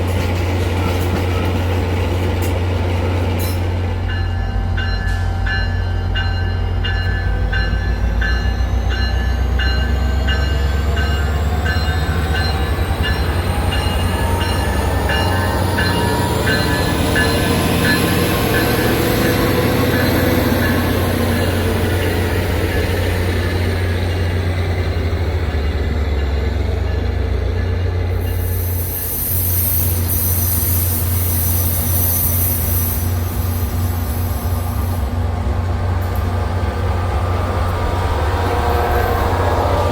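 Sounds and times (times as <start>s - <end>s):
train rumbling past: 0.0s - 39.9s
high squeal: 27.8s - 35.1s.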